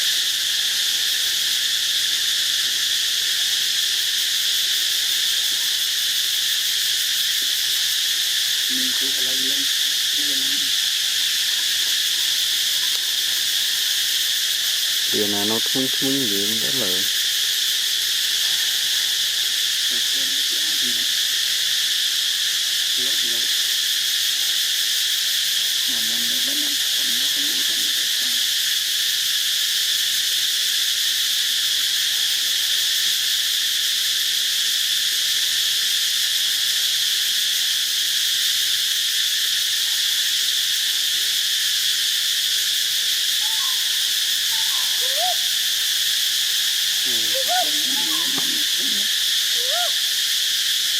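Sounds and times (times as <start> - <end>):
insects shrilling: 0.0 - 50.9
faint wavering low calls: 43.4 - 45.5, 47.0 - 49.9.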